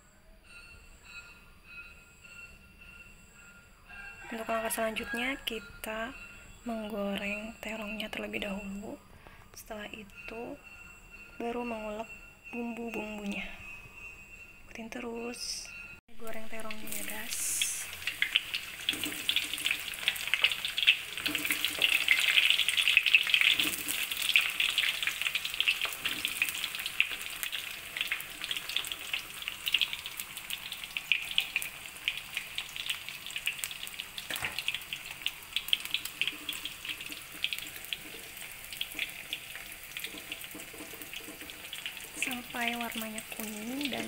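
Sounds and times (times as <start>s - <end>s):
deep-frying sizzle and crackling: 16.2s - 44.0s.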